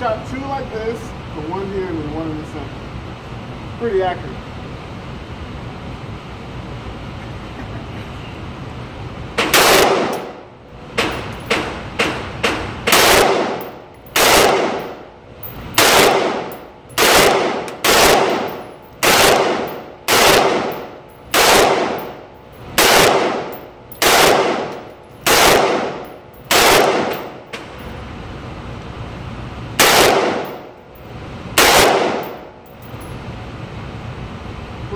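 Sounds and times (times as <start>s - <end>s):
rifle shots echoing: 9.4s - 10.4s, 11.0s - 15.1s, 15.7s - 27.6s, 29.8s - 30.7s, 31.6s - 32.6s.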